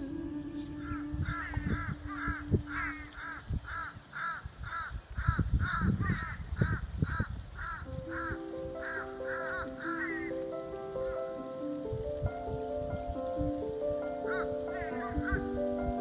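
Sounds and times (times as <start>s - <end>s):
soft background music: 0.0s - 3.9s, 7.8s - 16.0s
bird calling: 0.0s - 4.9s, 7.7s - 11.4s, 14.2s - 15.6s.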